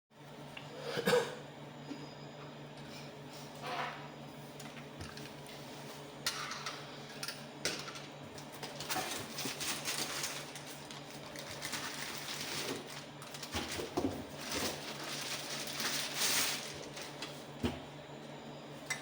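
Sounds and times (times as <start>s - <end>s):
low electrical hum: 0.2s - 19.0s.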